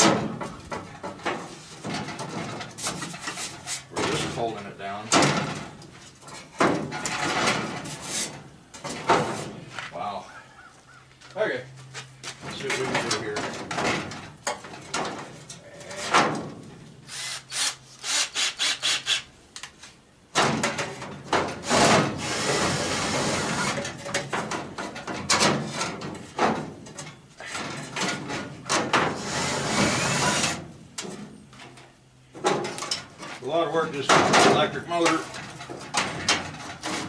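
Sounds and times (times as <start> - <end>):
power tool on sheet metal: 17.1 - 19.3, 21.6 - 23.9, 29.0 - 30.6.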